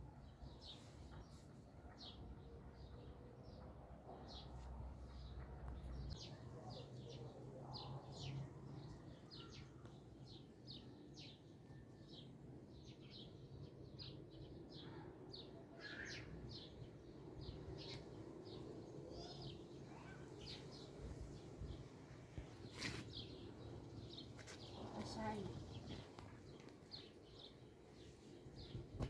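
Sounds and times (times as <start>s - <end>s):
faint bird chirping: 0.0s - 21.3s.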